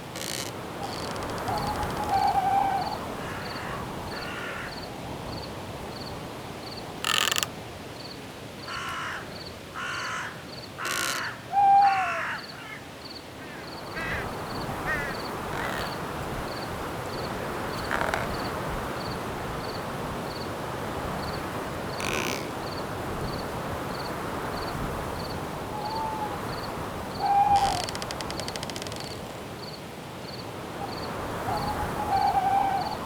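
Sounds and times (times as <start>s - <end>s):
wind hiss: 0.0s - 9.9s, 13.7s - 33.0s
crickets chirping: 0.0s - 33.0s
bird cawing: 0.1s - 4.9s, 7.0s - 7.5s, 8.7s - 16.1s, 17.6s - 18.6s, 21.9s - 22.6s, 25.7s - 29.2s, 31.4s - 33.0s.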